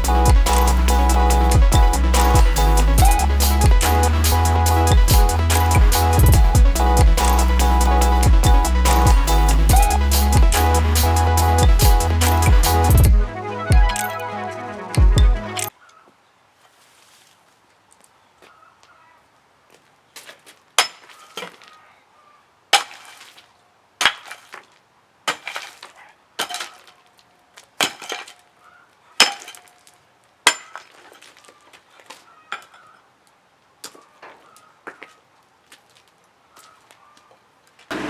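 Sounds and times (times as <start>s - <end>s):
sledgehammer hitting concrete: 27.8s - 28.4s, 29.2s - 29.7s.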